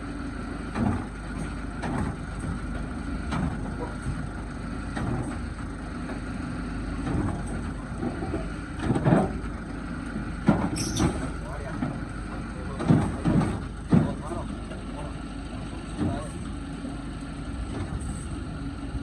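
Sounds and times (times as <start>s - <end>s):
knocks and clunks: 7.0s - 9.5s, 10.4s - 15.0s.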